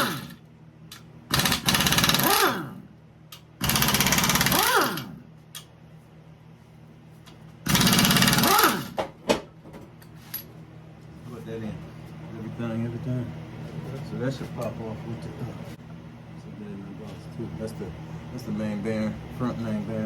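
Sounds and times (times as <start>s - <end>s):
air impact wrench hammering: 0.0s - 2.8s, 3.6s - 5.7s, 7.7s - 9.1s.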